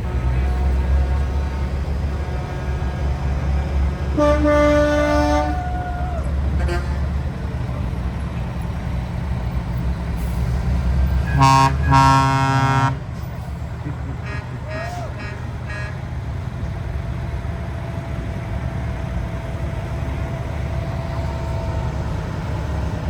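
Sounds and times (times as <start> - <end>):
truck air horn blasts: 0.0 - 5.8, 6.5 - 7.2, 11.2 - 13.1, 14.2 - 16.1
diesel truck engines rumbling: 0.0 - 23.0.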